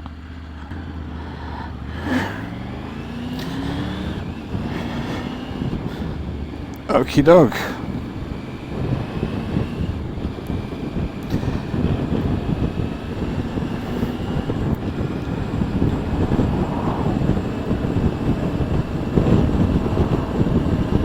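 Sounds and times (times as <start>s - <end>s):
motorcycle engine: 0.0s - 21.0s
road noise: 0.0s - 21.0s
wind on microphone: 1.0s - 6.9s, 7.6s - 21.0s.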